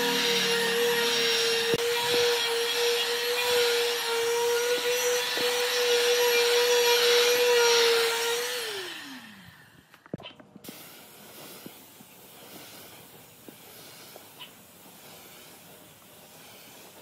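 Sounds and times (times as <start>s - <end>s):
power tool motor running: 0.0s - 10.1s.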